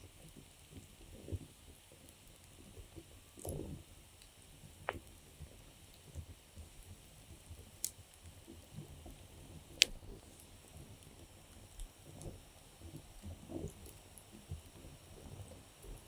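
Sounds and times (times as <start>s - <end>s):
campfire wood crackling: 0.1s - 16.0s
sharp pops from fire: 9.6s - 12.4s.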